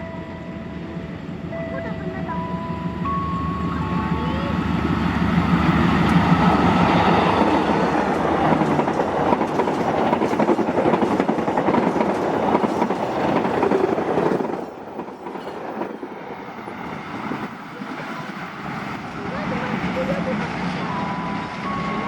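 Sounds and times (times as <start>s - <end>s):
train wheels clattering over rails: 5.4s - 21.7s.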